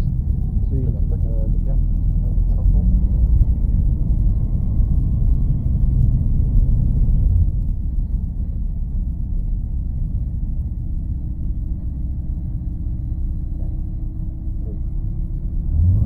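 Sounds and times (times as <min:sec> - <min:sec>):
aircraft engine and airflow rumble: 0:00.0 - 0:16.0
faint steady hum: 0:00.0 - 0:16.0.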